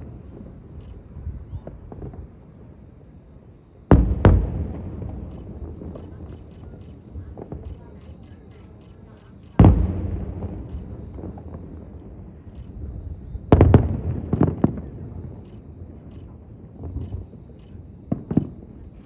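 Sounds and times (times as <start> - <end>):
small firework pops: 0.0 - 2.4, 3.9 - 19.0
firework shells bursting: 3.9 - 19.0.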